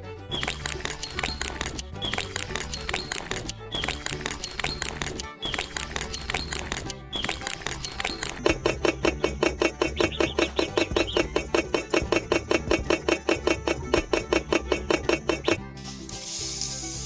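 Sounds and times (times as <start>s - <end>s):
rapid even knocking: 0.4s - 15.6s.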